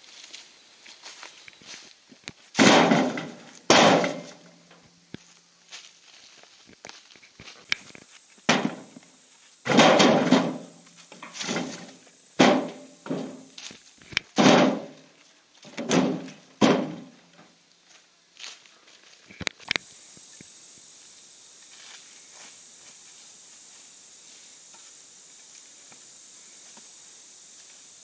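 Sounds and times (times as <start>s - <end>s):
heavy thumps with rustling crash: 2.5s - 4.5s, 8.5s - 9.0s, 9.7s - 17.3s.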